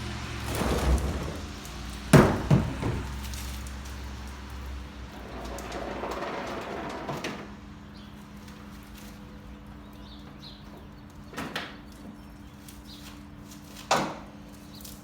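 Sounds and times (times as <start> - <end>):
sharp knocks: 2.1 - 3.3.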